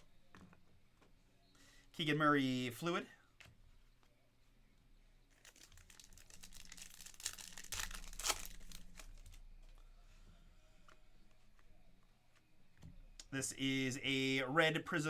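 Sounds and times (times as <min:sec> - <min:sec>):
plastic wrapper tearing and crinkling: 0:05.3 - 0:09.4.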